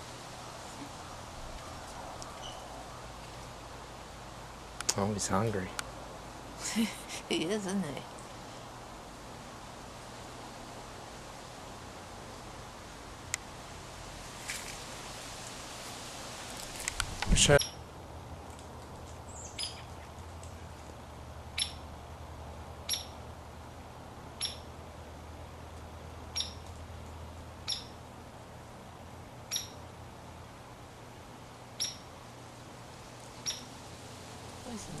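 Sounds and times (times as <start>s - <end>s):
woodpecker call notes: 0.4s - 3.5s, 17.4s - 17.9s, 19.3s - 20.1s, 21.5s - 21.9s, 22.8s - 23.2s, 24.3s - 24.8s, 26.3s - 26.7s, 27.6s - 28.0s, 29.4s - 29.9s, 31.7s - 32.2s, 33.4s - 33.8s.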